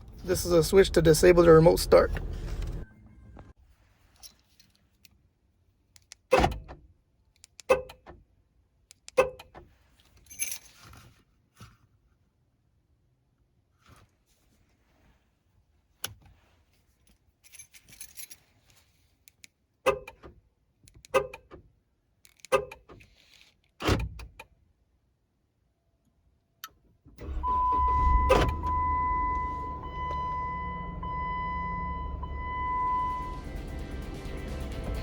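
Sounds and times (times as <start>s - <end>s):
car engine idling: 0.0s - 3.5s, 27.2s - 35.0s
light clicks and jangle: 10.2s - 10.8s, 17.1s - 18.8s
steady high tone: 27.6s - 35.0s.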